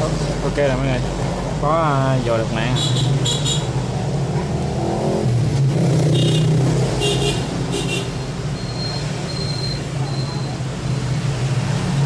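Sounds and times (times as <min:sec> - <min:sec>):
short high-pitched beeps: 0:08.5 - 0:10.6.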